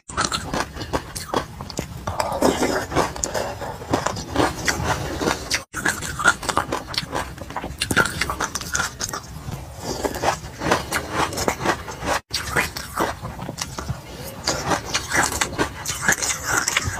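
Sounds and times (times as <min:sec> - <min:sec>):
crunching and chewing seeds: 0:00.0 - 0:16.9.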